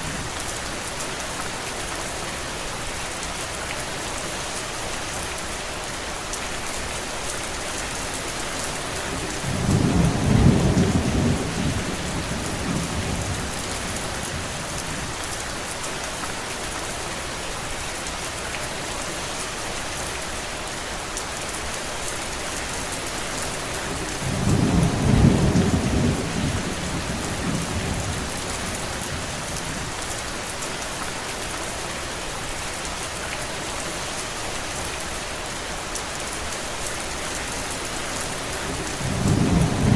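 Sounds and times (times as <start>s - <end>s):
rain falling: 0.0s - 39.9s
low rolls of thunder: 9.4s - 14.6s, 24.2s - 29.4s, 38.9s - 39.9s.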